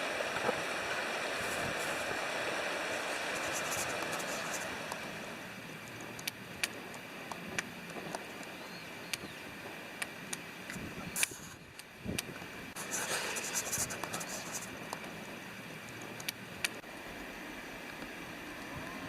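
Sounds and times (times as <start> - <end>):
river water rushing: 0.0 - 5.7
campfire crackling and popping: 0.1 - 12.4.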